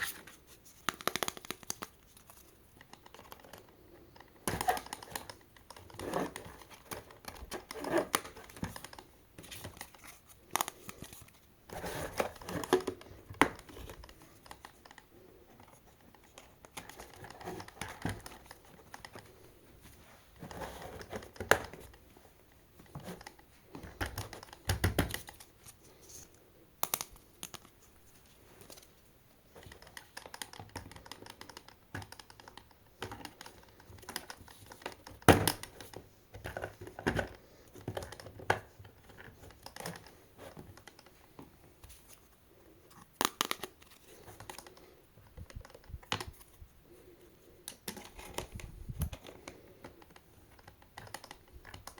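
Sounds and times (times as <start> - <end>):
sharp clicks and taps: 0.8 - 2.0.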